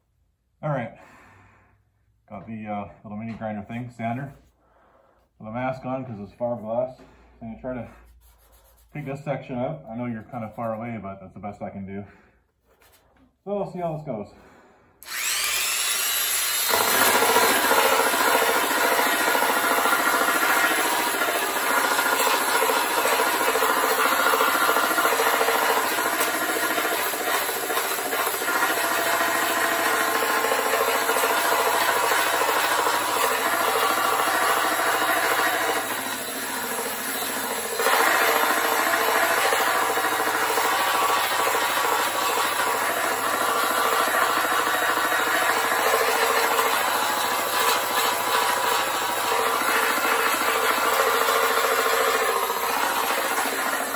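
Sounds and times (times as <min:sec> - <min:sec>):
grinder cutting fiberglass: 0:15.0 - 0:53.9.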